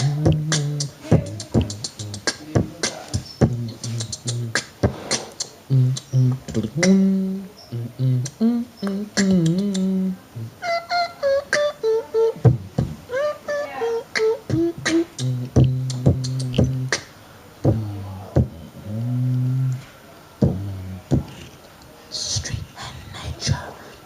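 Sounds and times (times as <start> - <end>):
beatboxing clicks and pops: 0.0 - 10.1, 11.3 - 13.0, 14.1 - 17.1, 19.3 - 19.8, 20.4 - 23.6
pitched vocal notes: 0.0 - 21.5.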